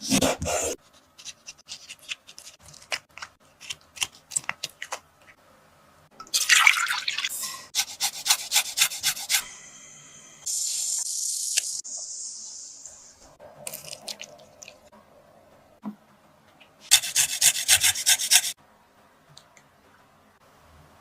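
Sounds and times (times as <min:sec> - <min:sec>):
running water hiss: 0:09.4 - 0:13.2.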